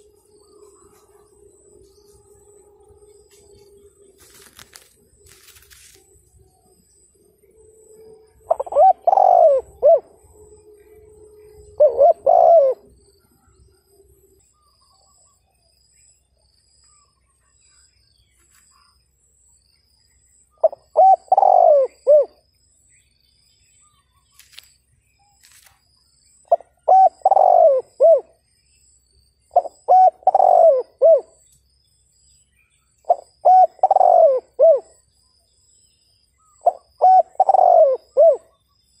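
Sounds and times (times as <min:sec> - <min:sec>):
dove cooing: 0:08.4 - 0:13.5, 0:20.6 - 0:22.4, 0:26.5 - 0:28.4, 0:29.5 - 0:31.4, 0:33.1 - 0:35.0, 0:36.6 - 0:38.6.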